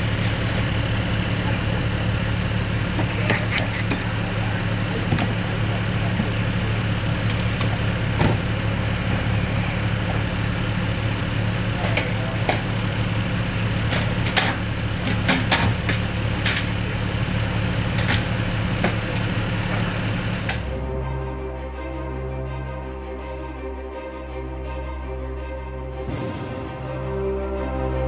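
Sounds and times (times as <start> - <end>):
vehicle engine idling: 0.0 - 21.6.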